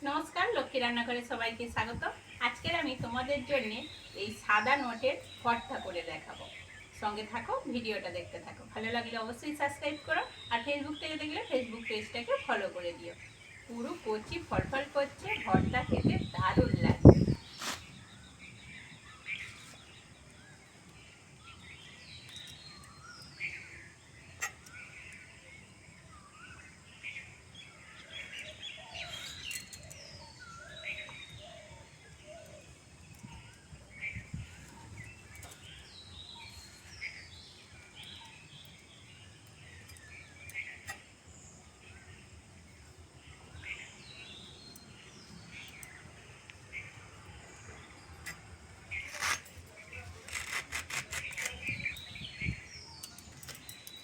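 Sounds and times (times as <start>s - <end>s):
small birds chirping: 0.0s - 54.0s
sharp clicks: 48.2s - 54.0s.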